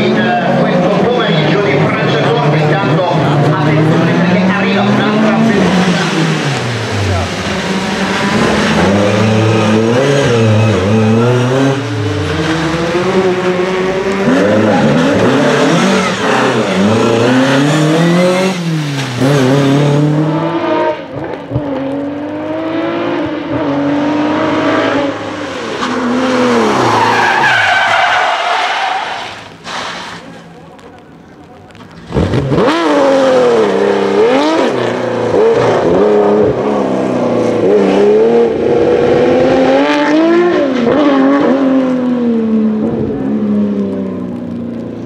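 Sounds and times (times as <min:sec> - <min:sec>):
rally car engine revving: 0:00.0 - 0:30.8, 0:31.6 - 0:45.0
tyres squealing on wet surface: 0:04.9 - 0:12.8, 0:25.3 - 0:30.6.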